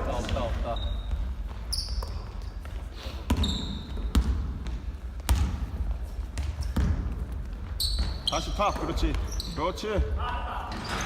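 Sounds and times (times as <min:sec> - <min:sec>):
sneakers squeaking on floor: 0:00.0 - 0:11.0
basketball bouncing on court: 0:00.1 - 0:10.2.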